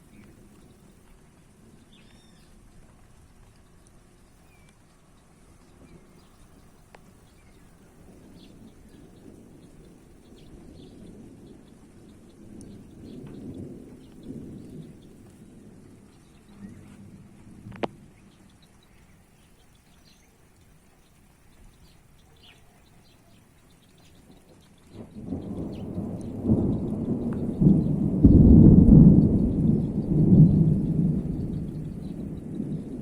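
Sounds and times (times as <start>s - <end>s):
light rain ticking: 0.0s - 33.0s
thunder rumbling: 5.7s - 19.3s, 24.2s - 33.0s.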